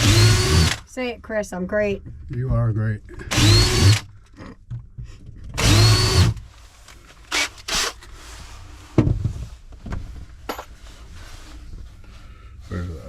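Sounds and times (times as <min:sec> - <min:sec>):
power drill running: 0:00.0 - 0:00.8, 0:03.3 - 0:04.1, 0:05.6 - 0:06.4, 0:07.3 - 0:08.0
tool handling knocks and clicks: 0:09.0 - 0:10.8.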